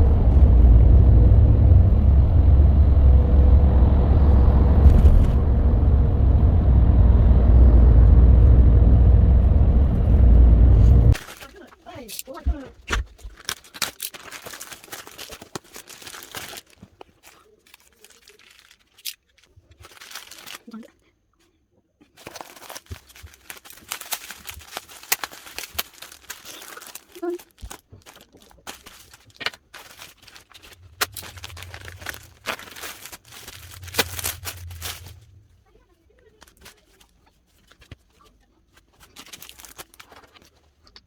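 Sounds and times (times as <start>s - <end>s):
low hum: 0.0s - 11.2s, 30.5s - 35.7s
packaging wrapper crinkling: 13.1s - 21.0s, 22.1s - 41.0s.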